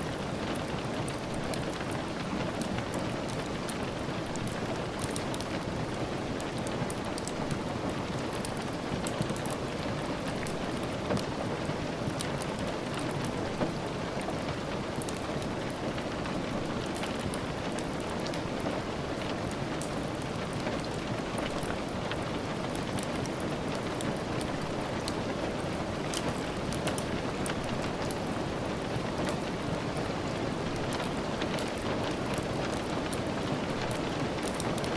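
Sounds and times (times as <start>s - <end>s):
steady rain: 0.0s - 34.9s.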